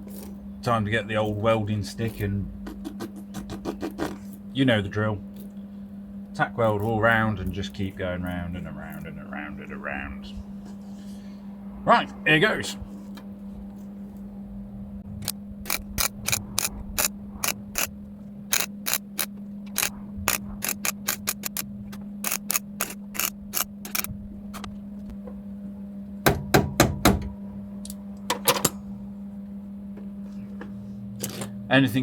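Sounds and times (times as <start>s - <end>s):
steady hum: 0.0s - 32.0s
welder crackling tacks: 15.2s - 17.9s, 18.5s - 24.6s.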